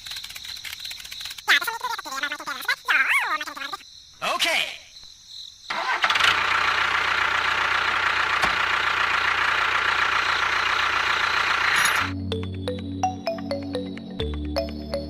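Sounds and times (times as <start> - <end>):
tractor engine starting and running: 5.7 - 12.9.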